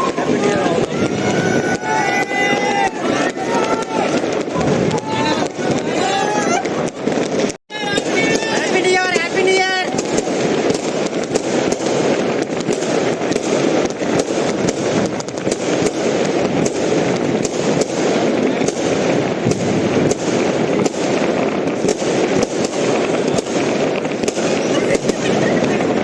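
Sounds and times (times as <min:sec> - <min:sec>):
firecrackers and fireworks banging: 0:00.0 - 0:26.0.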